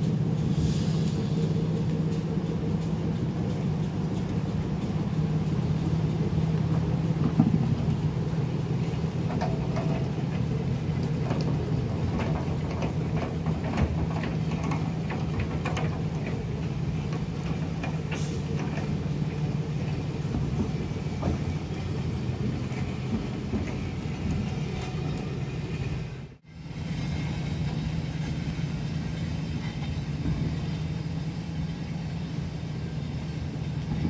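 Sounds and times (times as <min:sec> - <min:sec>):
low engine drone: 0:00.0 - 0:34.0
railway cars rolling past: 0:00.0 - 0:34.0
wheels clicking and creaking: 0:00.0 - 0:34.0
brief hiss: 0:00.4 - 0:01.6.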